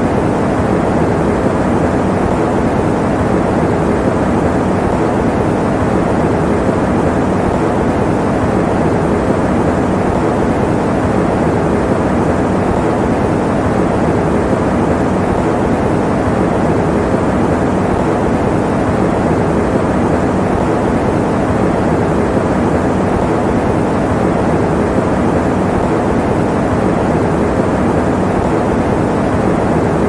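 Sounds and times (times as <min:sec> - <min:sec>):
electric fan running: 0:00.0 - 0:30.0.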